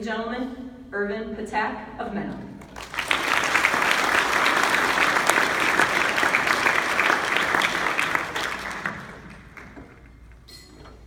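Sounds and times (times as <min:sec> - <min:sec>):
audience applauding: 0:02.6 - 0:10.2.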